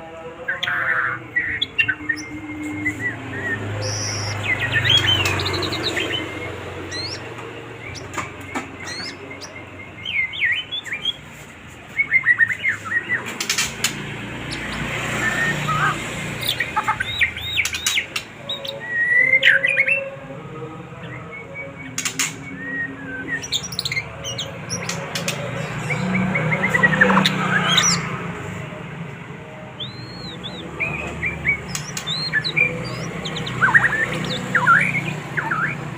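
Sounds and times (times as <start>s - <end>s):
songbird singing varied song: 0.4s - 20.2s, 20.8s - 28.2s, 29.1s - 35.9s.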